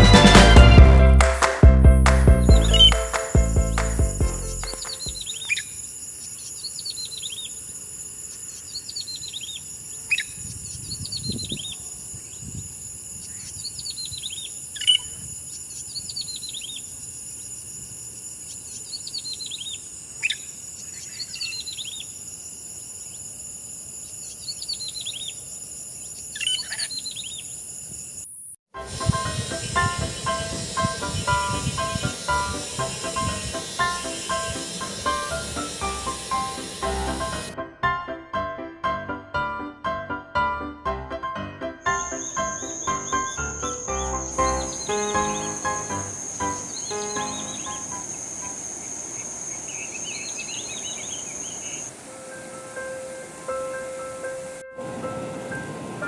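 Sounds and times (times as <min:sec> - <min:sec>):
insects droning: 0:02.6 - 0:37.6, 0:41.8 - 0:56.0
bird descending trill call: 0:28.9 - 0:37.6, 0:41.9 - 0:53.8.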